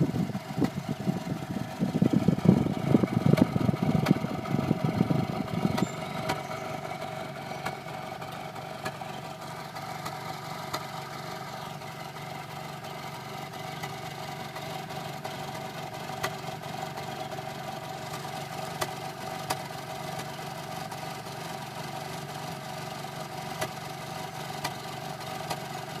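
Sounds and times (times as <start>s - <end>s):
exhaust pops: 0.0s - 7.0s
car exhaust idling bubbling: 0.0s - 26.0s.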